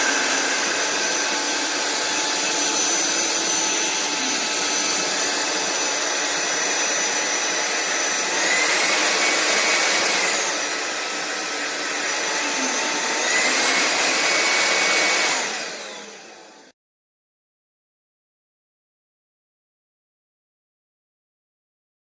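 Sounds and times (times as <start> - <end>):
stick vacuum motor whine: 0.0 - 16.7.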